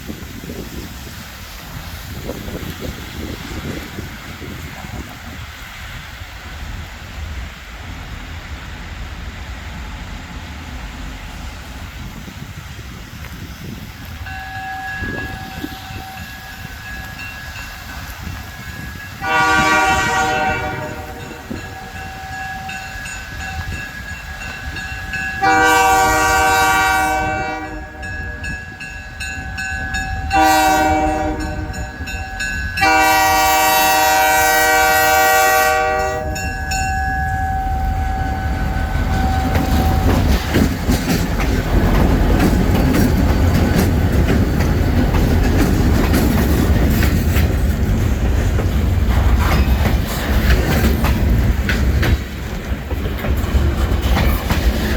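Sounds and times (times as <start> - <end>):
train engine and wheels rumbling: 0.0 - 54.9
locomotive horn blasts: 19.2 - 22.4, 25.4 - 28.6, 30.3 - 32.2, 32.8 - 40.1.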